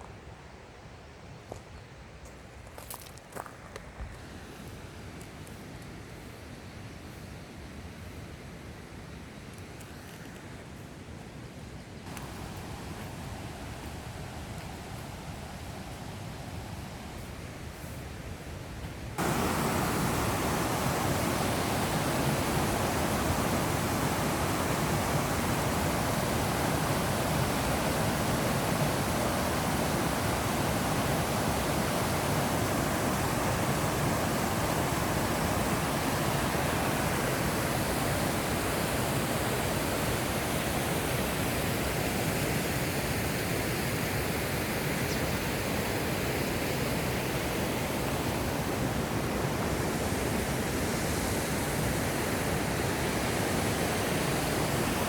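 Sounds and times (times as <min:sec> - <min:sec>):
waterfall rushing: 0:12.1 - 0:17.2, 0:19.2 - 0:55.0.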